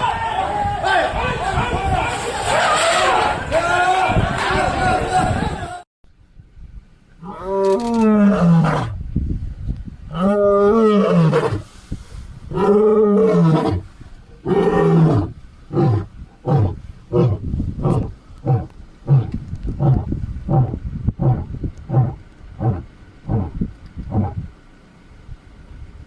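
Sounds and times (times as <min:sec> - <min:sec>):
big cat roaring: 0:07.2 - 0:09.0, 0:10.1 - 0:11.6, 0:12.5 - 0:24.4
big cat grunting: 0:14.4 - 0:24.4.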